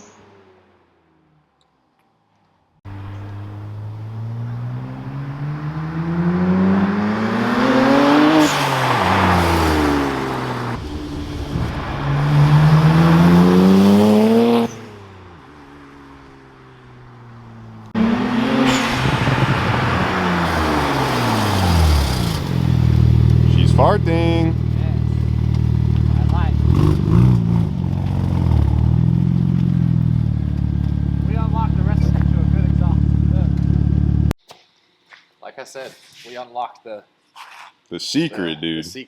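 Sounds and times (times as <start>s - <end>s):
car engine revving through exhaust: 2.9s - 15.3s, 17.8s - 30.2s.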